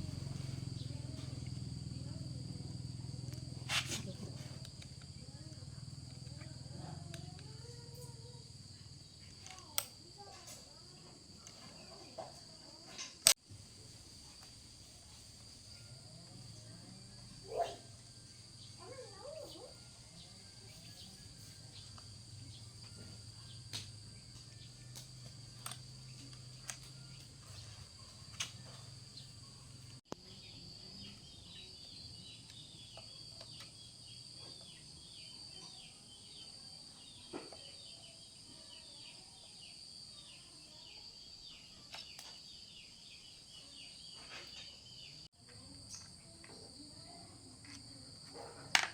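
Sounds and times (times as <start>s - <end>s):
shrill insect chorus: 15.6s - 45.2s.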